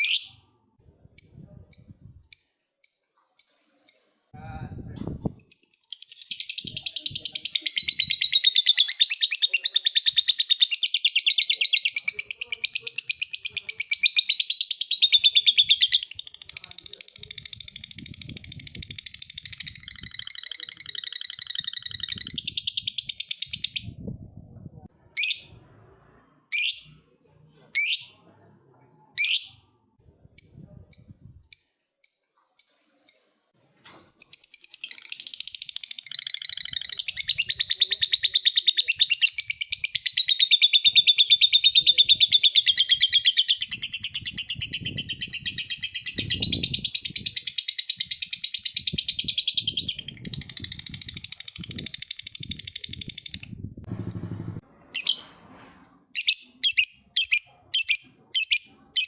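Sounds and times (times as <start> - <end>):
lovebird chattering trill: 5.2 - 24.0, 34.2 - 53.5.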